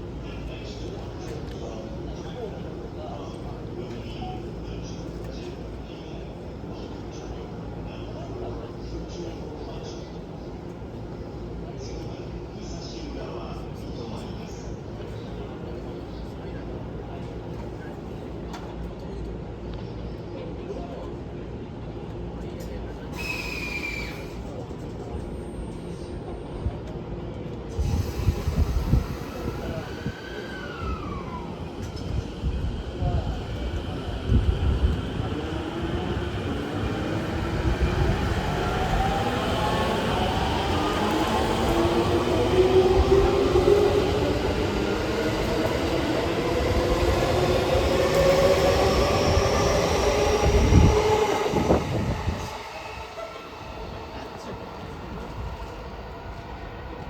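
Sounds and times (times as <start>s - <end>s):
train running gear rumble: 26.8s - 57.0s.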